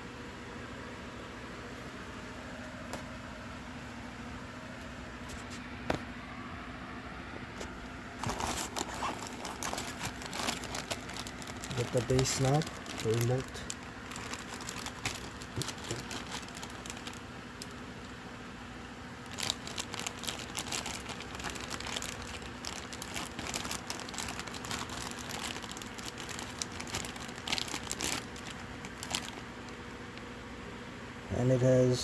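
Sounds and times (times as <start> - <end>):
packaging crinkling: 7.6 - 18.2, 19.2 - 30.3.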